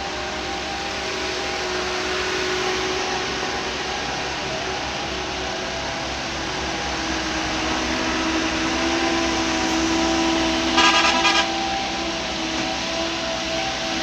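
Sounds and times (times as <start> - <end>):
heavy diesel machinery running: 0.0 - 14.0
loud pulsing tonal burst: 8.3 - 14.0.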